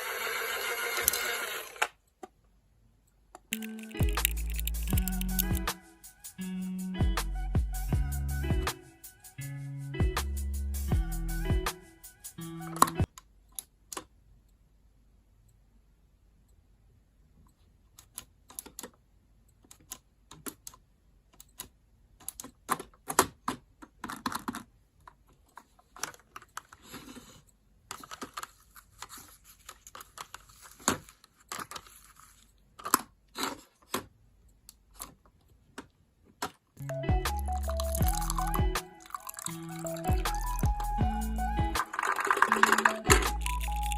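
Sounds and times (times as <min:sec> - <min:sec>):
objects clicking and tapping: 0:03.4 - 0:05.6, 0:41.8 - 0:43.9
crinkling and crackling: 0:24.0 - 0:34.2, 0:41.8 - 0:43.9.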